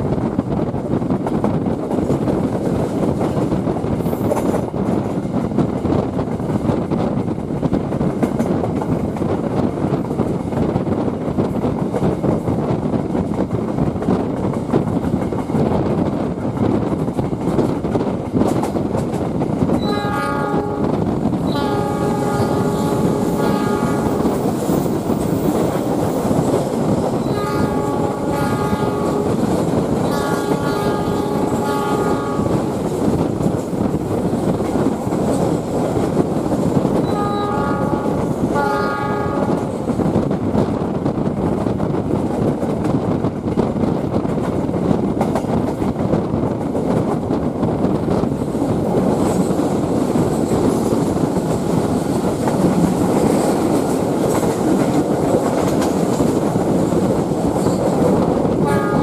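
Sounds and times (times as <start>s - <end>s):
train wheels clattering on rails: 0.0s - 59.0s
locomotive horn blasts: 19.8s - 24.3s, 27.2s - 29.4s, 30.0s - 32.7s, 37.0s - 39.7s, 58.6s - 59.0s.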